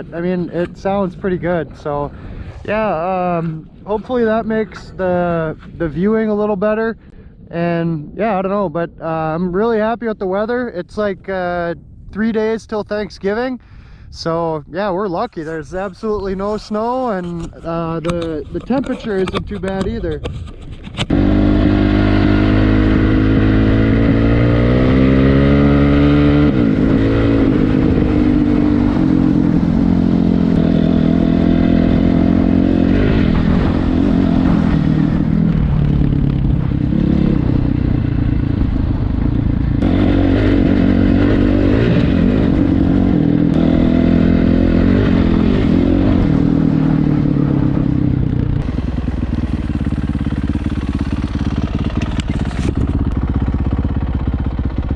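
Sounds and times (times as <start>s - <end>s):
dirt bike engine revving: 21.1s - 54.9s.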